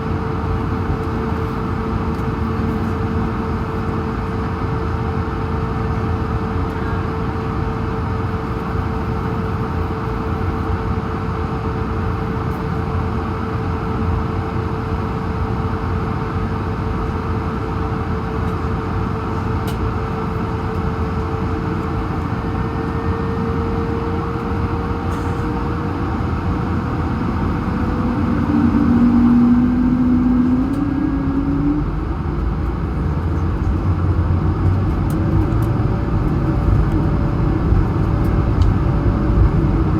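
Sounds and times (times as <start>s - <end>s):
cabin engine hum: 0.0s - 39.9s
jet engines spooling up: 20.6s - 34.1s.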